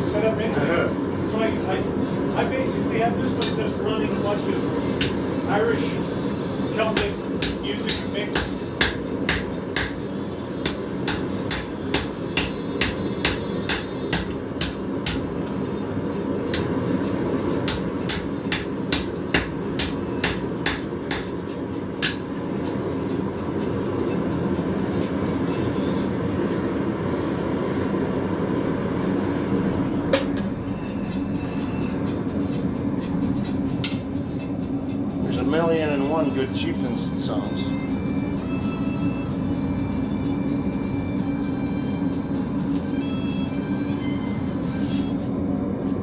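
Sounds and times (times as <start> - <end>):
hammer striking steel on anvil: 7.0 - 10.0, 10.6 - 15.3, 17.7 - 21.4, 22.0 - 22.2.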